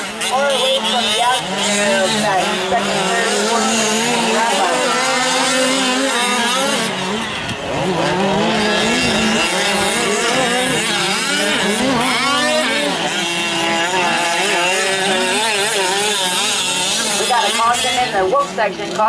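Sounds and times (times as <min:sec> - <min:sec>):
model truck engines revving: 0:00.0 - 0:19.0.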